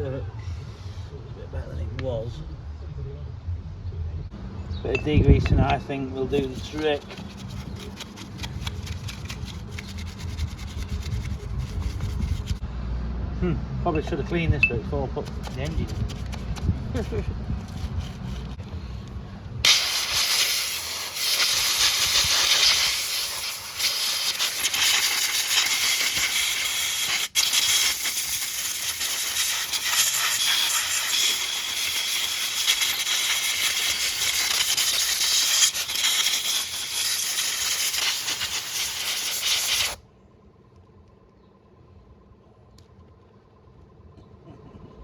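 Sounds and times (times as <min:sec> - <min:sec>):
aerosol spray hissing: 0:19.7 - 0:40.0.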